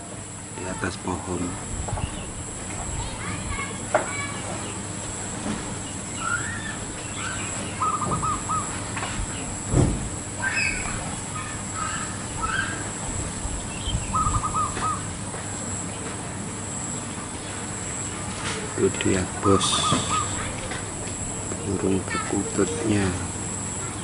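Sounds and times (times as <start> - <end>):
small birds chirping: 0.5 - 24.0
dove cooing: 6.2 - 9.7, 10.4 - 13.0, 13.7 - 15.8, 18.6 - 24.0
low thump: 9.7 - 10.1.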